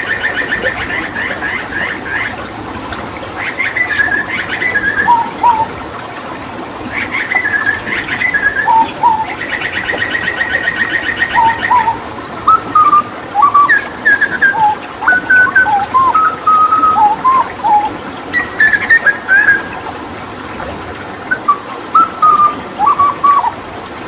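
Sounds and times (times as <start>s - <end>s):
butcherbird whistled song: 0.0s - 2.3s, 3.4s - 5.7s, 7.0s - 19.8s, 21.3s - 23.6s
running water: 0.0s - 24.0s.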